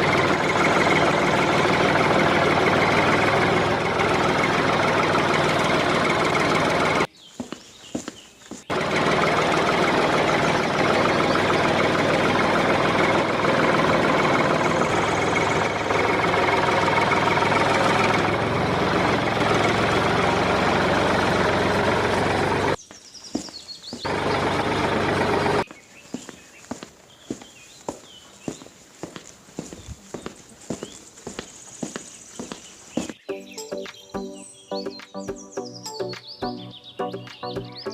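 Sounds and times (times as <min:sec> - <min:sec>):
motor running: 0:00.0 - 0:07.1, 0:08.7 - 0:22.8, 0:24.0 - 0:25.6.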